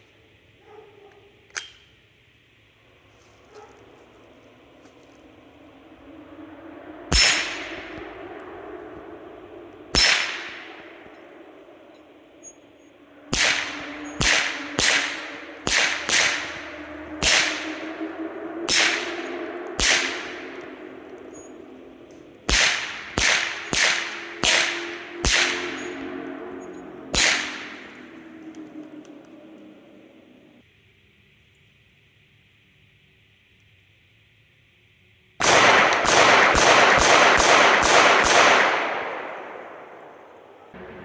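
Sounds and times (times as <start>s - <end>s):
gunshots with ringing echo: 7.1s - 8.3s, 9.9s - 18.0s, 18.6s - 21.7s, 22.4s - 26.4s, 27.1s - 28.1s, 35.4s - 41.0s.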